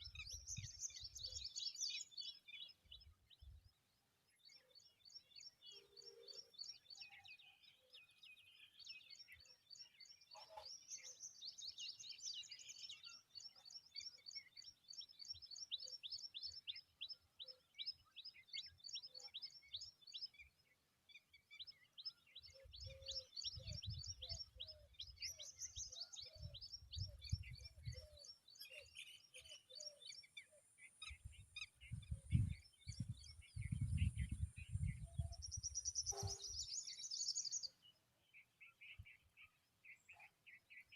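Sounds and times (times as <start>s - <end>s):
small bird high chirps: 21.6s - 40.9s.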